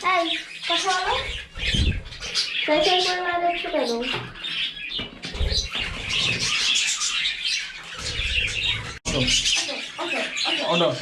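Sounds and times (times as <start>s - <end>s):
budgerigars chirping: 0.0s - 11.0s.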